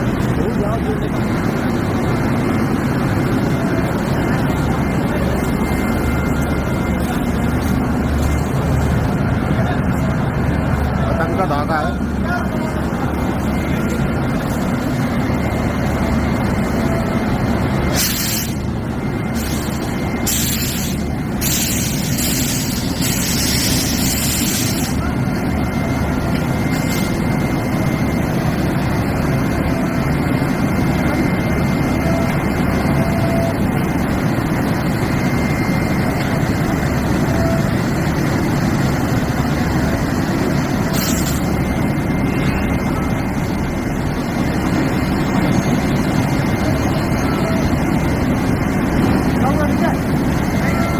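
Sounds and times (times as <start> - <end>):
locomotive engine droning: 0.0 - 50.9
compressed air hissing: 17.9 - 18.6, 19.4 - 25.0, 40.9 - 41.4.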